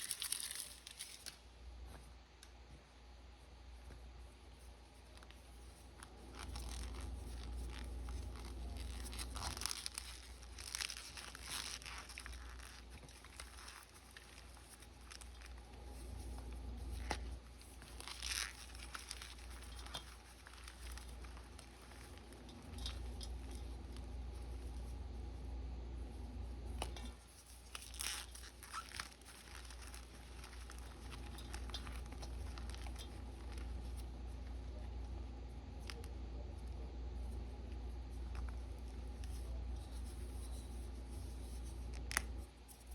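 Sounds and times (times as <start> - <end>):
soft crumbling crackles: 0.0 - 42.9
chalk crunching and crumbling: 5.1 - 24.9.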